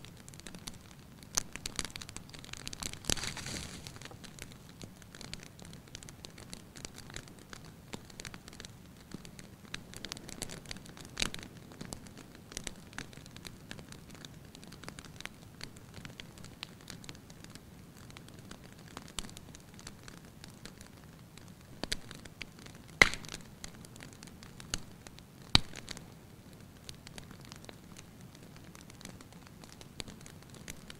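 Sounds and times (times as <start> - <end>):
wood fire crackling: 0.0 - 30.9
sharp fire pops: 0.1 - 13.8, 21.8 - 26.1.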